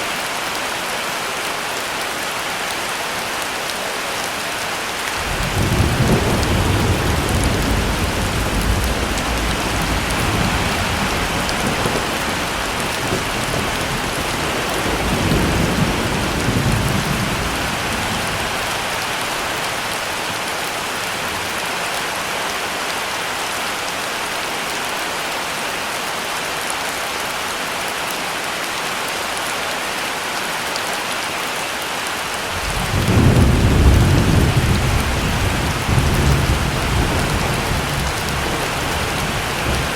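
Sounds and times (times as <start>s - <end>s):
heavy steady rain: 0.0s - 39.9s
thunder rumbling: 5.2s - 18.8s, 32.5s - 39.9s.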